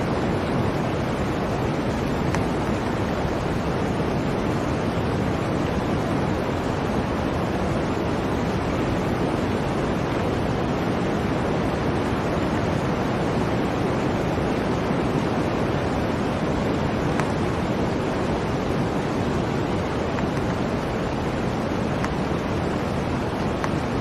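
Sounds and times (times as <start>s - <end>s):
blizzard wind rushing: 0.0s - 24.0s.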